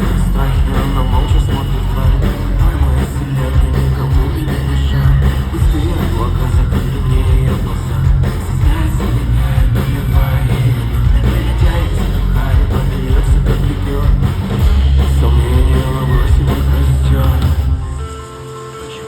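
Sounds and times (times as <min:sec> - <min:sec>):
rock music with singing: 0:00.0 - 0:19.0.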